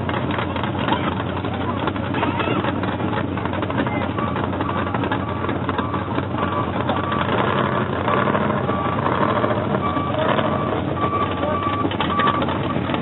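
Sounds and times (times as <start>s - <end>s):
large vehicle engine running: 0.0s - 13.0s
short high beeps: 4.0s - 12.9s.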